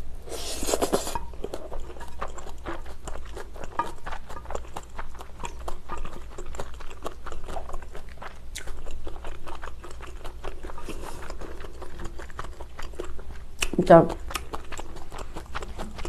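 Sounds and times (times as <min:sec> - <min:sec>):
close chewing of noodles: 0:00.2 - 0:16.0
spoon scraping a plate: 0:00.3 - 0:02.4.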